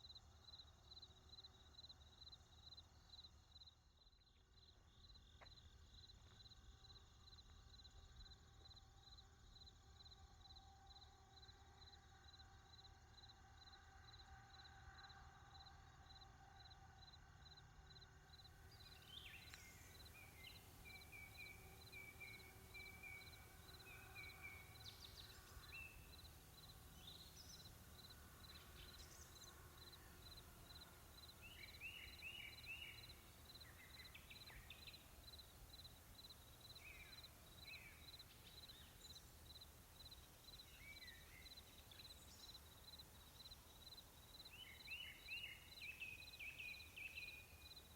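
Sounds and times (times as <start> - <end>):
small birds chirping: 18.7 - 47.9.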